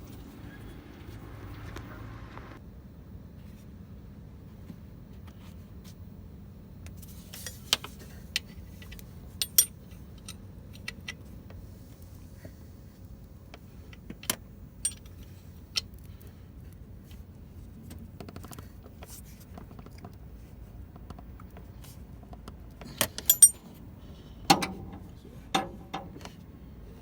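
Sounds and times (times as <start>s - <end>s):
metal tools clinking: 9.4s - 10.4s, 14.8s - 15.3s, 23.0s - 23.8s.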